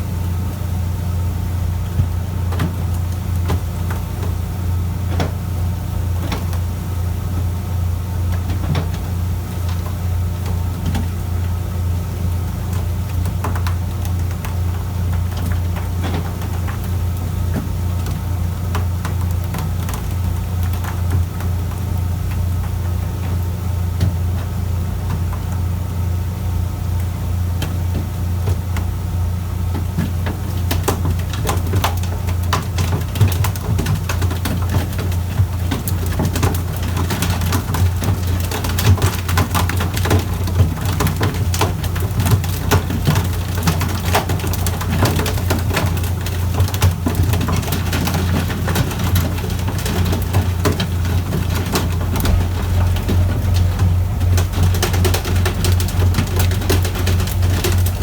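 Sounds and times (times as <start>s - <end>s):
water splashing: 51.7s - 58.0s
boat engine droning: 51.8s - 58.0s.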